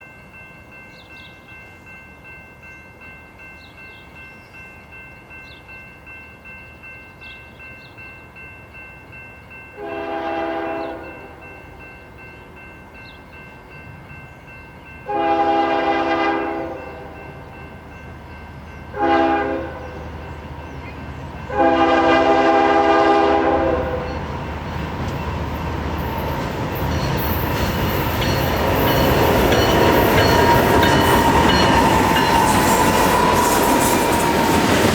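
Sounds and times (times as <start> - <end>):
locomotive air horn blasts: 9.8 - 11.4, 15.1 - 17.2, 18.9 - 19.9, 21.5 - 24.1
train wheel noise: 9.8 - 34.9.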